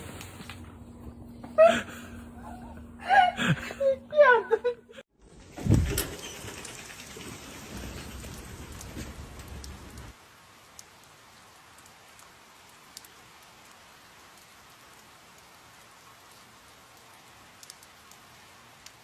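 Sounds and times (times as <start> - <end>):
rain falling on a surface: 5.2 - 19.0
sharp drip ticks: 16.9 - 19.0.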